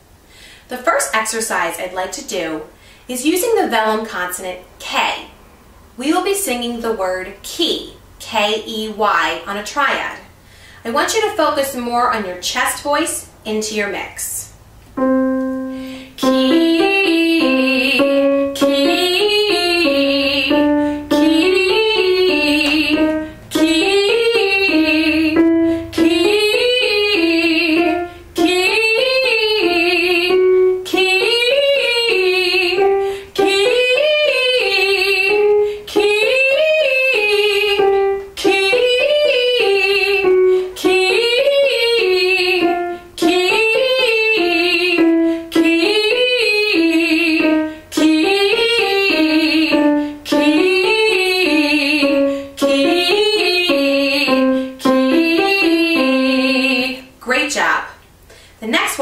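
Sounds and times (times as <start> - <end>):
piano accompaniment: 14.9 - 57.2
woman singing vocal exercise: 15.8 - 57.7.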